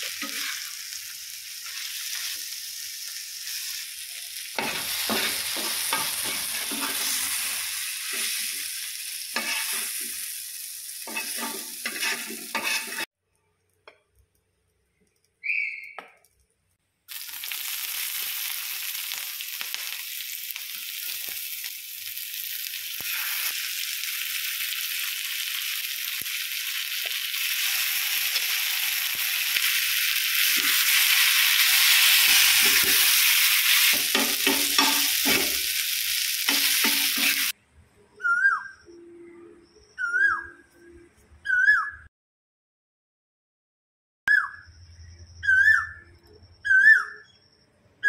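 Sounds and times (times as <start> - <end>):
meat and onions sizzling: 0.0 - 13.1, 17.1 - 37.6
spoon scraping pan: 4.6 - 7.5, 9.3 - 10.2, 11.0 - 13.1, 30.4 - 35.8, 36.5 - 37.5.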